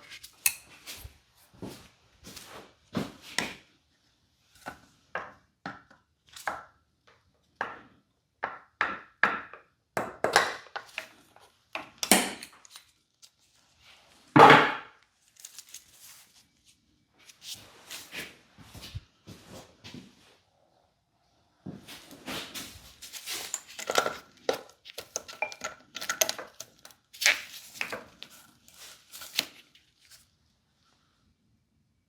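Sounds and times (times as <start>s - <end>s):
metal tools knocking and clinking: 23.4s - 26.7s.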